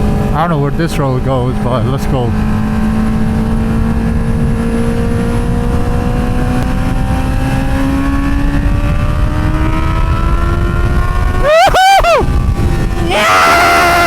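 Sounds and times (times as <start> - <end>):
wind noise: 0.0 - 14.0.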